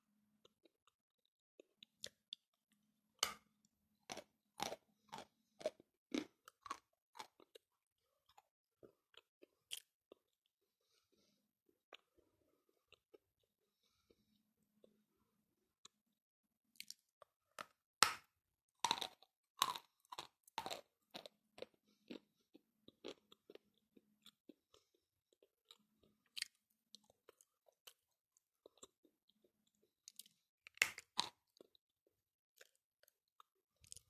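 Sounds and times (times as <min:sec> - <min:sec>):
chewing crunches: 0:04.1 - 0:10.4, 0:18.8 - 0:31.8, 0:32.6 - 0:34.0.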